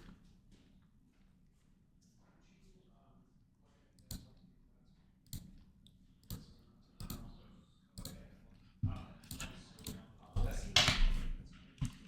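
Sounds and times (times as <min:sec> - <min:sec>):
computer mouse clicking: 0:04.0 - 0:04.4, 0:05.2 - 0:07.3, 0:08.0 - 0:08.2.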